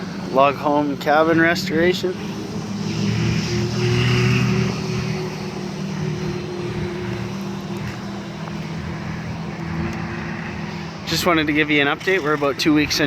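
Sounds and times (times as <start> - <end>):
engine humming steadily: 0.0 - 13.0.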